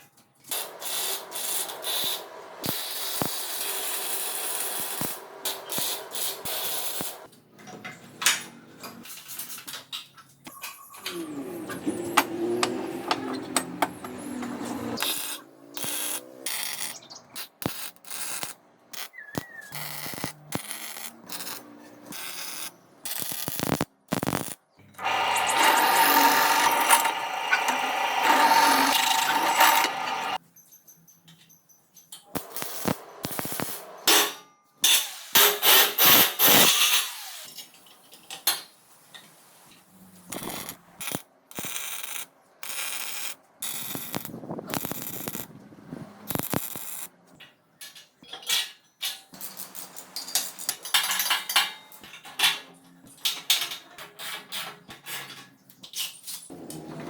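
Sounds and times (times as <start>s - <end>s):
power tool running: 11.3s - 15.1s, 25.0s - 30.4s
clicks and scrapes: 23.6s - 30.4s.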